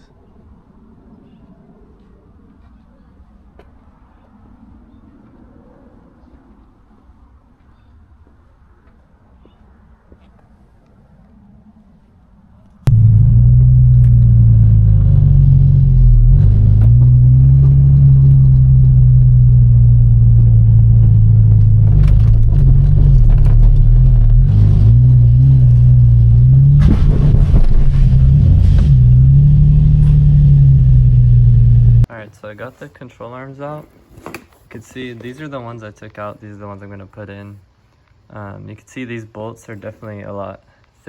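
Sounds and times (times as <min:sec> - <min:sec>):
car engine idling: 0:12.9 - 0:26.9, 0:28.2 - 0:32.1.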